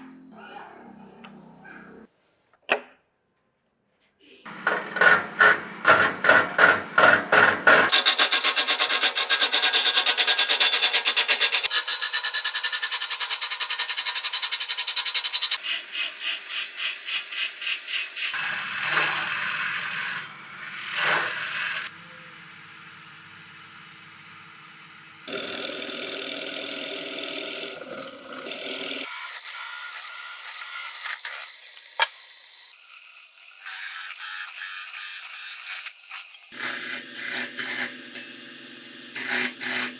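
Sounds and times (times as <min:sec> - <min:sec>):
wood rasping and scraping: 0:04.5 - 0:13.2.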